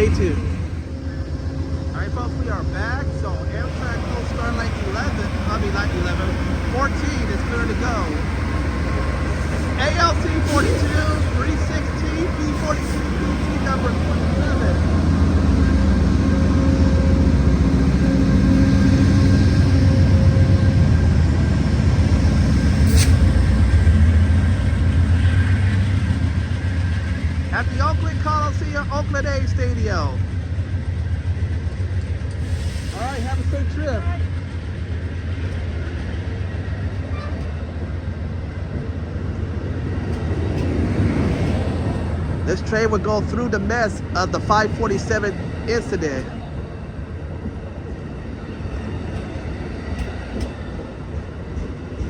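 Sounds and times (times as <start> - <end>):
diesel locomotives rumbling: 0.0 - 52.0.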